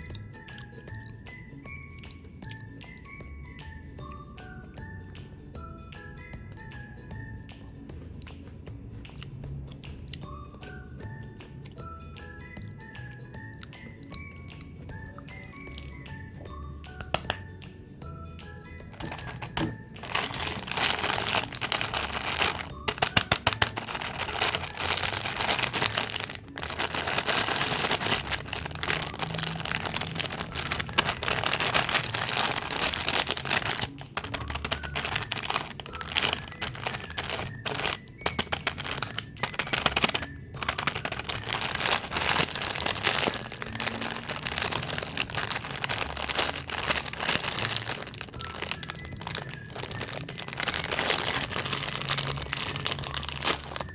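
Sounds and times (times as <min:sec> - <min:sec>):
wrappers crinkling: 0:18.9 - 0:53.9.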